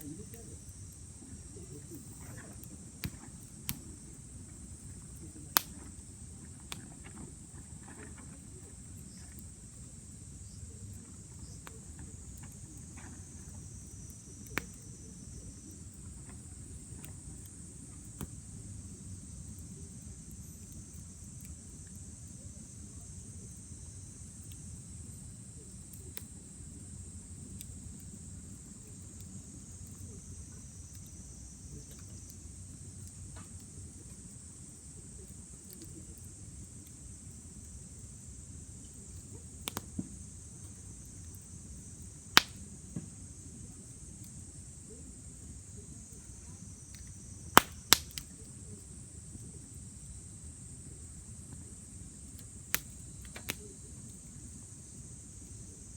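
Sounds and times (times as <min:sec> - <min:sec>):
campfire crackling and popping: 0:00.0 - 0:07.7, 0:14.0 - 0:18.5, 0:38.8 - 0:40.7, 0:42.2 - 0:42.8, 0:46.9 - 0:48.6, 0:52.3 - 0:53.8
insects chirring: 0:00.0 - 0:55.9.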